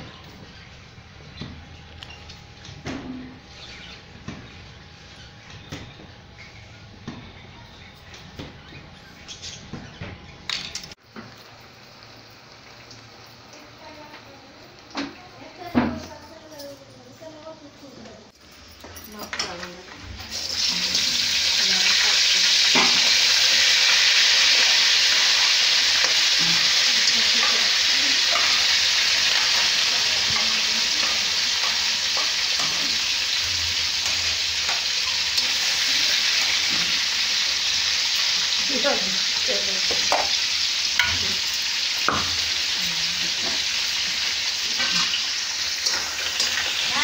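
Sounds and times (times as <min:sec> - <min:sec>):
food sizzling in hot oil: 0:11.1 - 0:15.7, 0:20.3 - 0:47.0.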